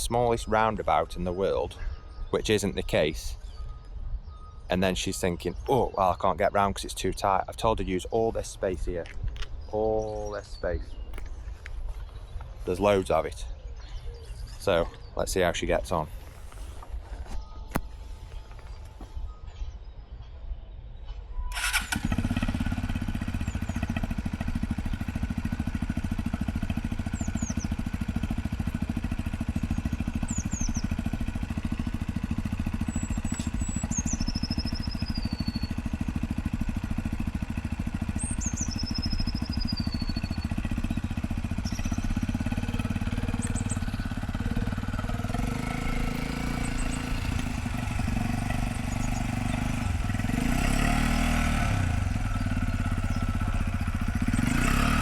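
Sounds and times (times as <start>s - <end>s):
bird chirping: 0.0s - 55.0s
motorcycle engine running: 21.5s - 55.0s.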